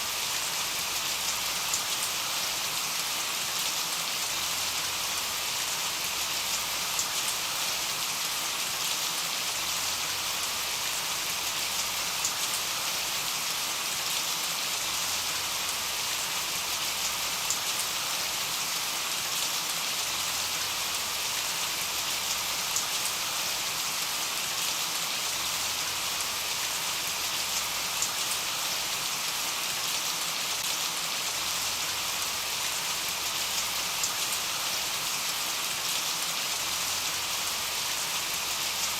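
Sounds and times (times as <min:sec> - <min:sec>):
steady rain hiss: 0:00.0 - 0:38.9
faint raindrop ticks: 0:01.3 - 0:02.1, 0:06.5 - 0:07.3, 0:17.4 - 0:17.8.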